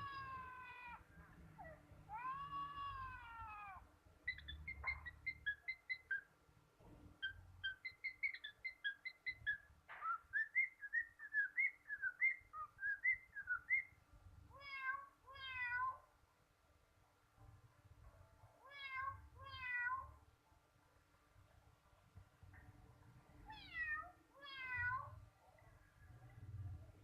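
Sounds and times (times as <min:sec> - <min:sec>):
meow-like bird calls: 0:00.0 - 0:06.3, 0:14.5 - 0:16.1, 0:18.6 - 0:20.2, 0:23.4 - 0:25.2.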